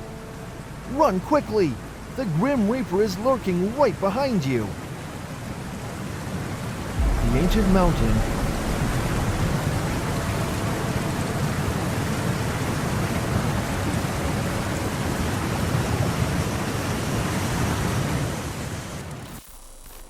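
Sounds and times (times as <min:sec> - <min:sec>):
loud low rushing noise: 0:07.0 - 0:12.2.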